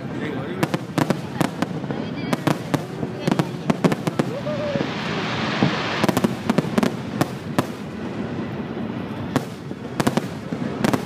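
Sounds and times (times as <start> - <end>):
firework crackle: 0.0 - 11.0
firework shells bursting: 0.6 - 8.3.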